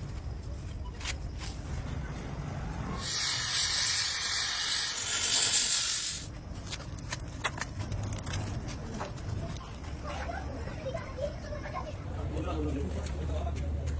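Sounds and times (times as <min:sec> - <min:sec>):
steady hiss: 0:02.9 - 0:06.4.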